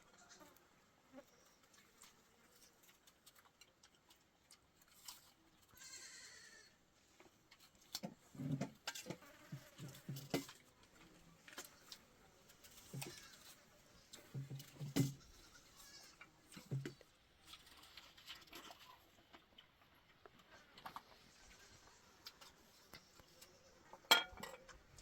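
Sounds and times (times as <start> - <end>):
goats bleating: 5.7 - 6.8, 15.1 - 16.2.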